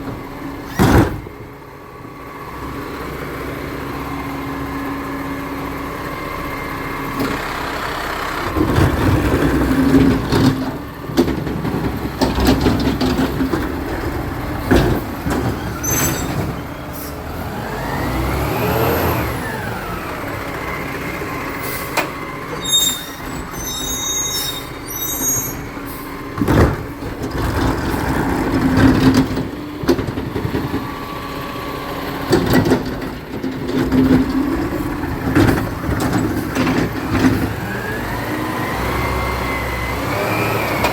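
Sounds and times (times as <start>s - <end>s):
truck diesel engine running: 0.0s - 40.9s
bin knocking and clattering: 8.6s - 16.6s, 26.4s - 30.8s, 32.3s - 37.5s
high squeaks: 15.6s - 17.2s, 21.6s - 26.1s.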